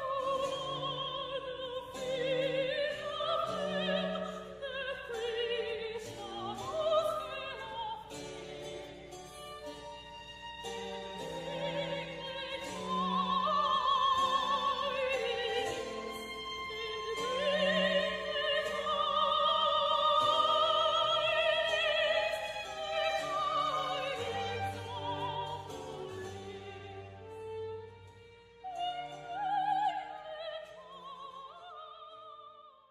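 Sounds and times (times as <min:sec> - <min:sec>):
operatic high voice singing: 0:00.0 - 0:08.6, 0:10.9 - 0:27.7
sustained orchestral notes: 0:00.0 - 0:31.5.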